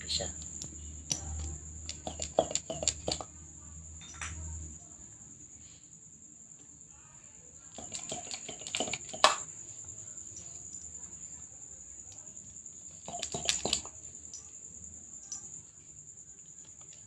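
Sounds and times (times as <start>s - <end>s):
crickets chirring: 0.0s - 17.0s
small objects clicking and clinking: 0.3s - 3.3s, 4.0s - 4.6s, 7.8s - 9.5s, 12.9s - 14.5s, 15.2s - 15.6s.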